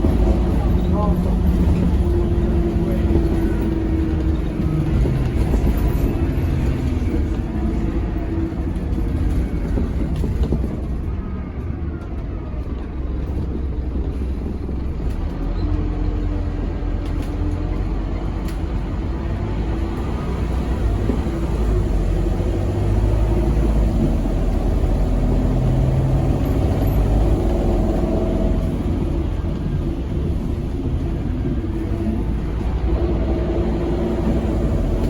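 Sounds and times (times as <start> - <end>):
bus engine rumbling: 0.0 - 35.0.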